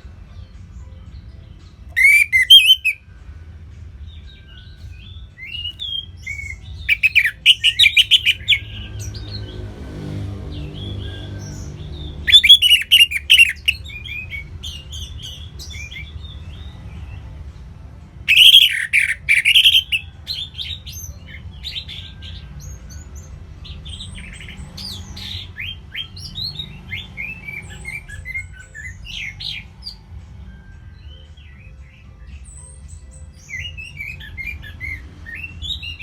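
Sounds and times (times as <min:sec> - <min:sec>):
songbirds chirping: 0:00.0 - 0:36.0
bursts of rapid chirping: 0:01.9 - 0:03.0, 0:05.5 - 0:08.8, 0:12.2 - 0:14.5, 0:18.3 - 0:20.0.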